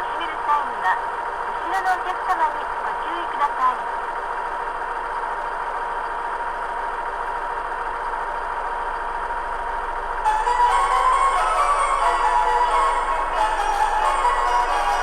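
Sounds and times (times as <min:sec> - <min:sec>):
diesel railcar engine idling: 0:00.0 - 0:15.0
chiming departure melody: 0:10.2 - 0:15.0
thin high tone: 0:10.3 - 0:15.0.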